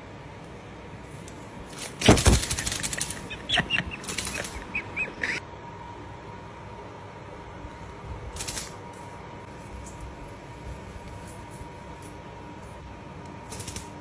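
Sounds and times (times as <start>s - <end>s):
bird wings flapping: 1.8s - 5.4s
short high bird calls: 2.0s - 5.4s.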